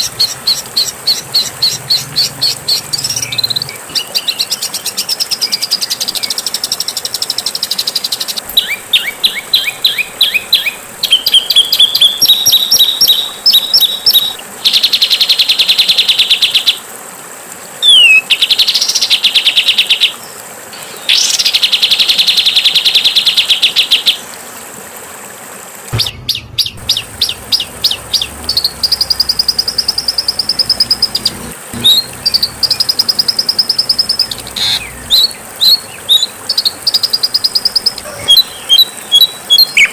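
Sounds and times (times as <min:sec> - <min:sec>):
songbird chattering and trilling: 0:00.0 - 0:15.5, 0:26.0 - 0:39.9.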